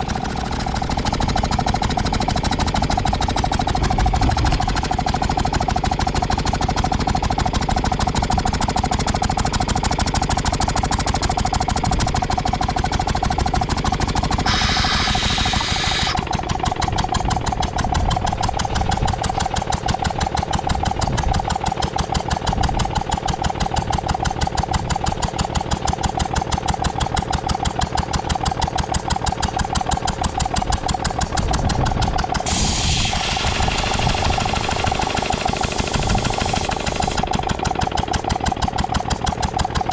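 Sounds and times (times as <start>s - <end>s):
air compressor running: 0.0s - 19.1s, 32.2s - 39.9s
loud hiss: 14.4s - 16.2s, 32.5s - 37.2s.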